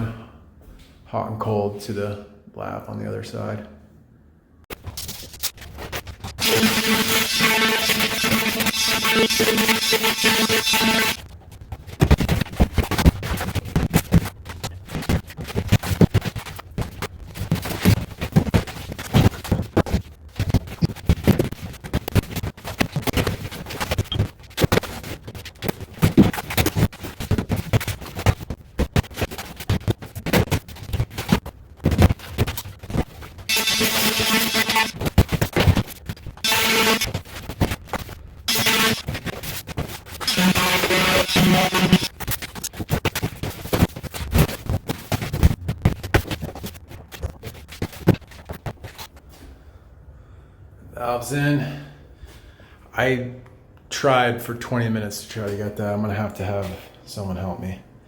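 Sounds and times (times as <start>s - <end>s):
knocks clicks and scrapes: 4.7s - 49.2s.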